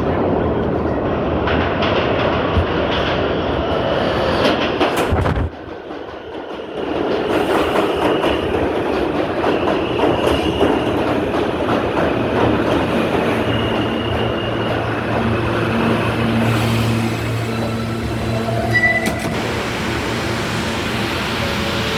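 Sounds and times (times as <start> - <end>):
subway train running: 0.0 - 21.9.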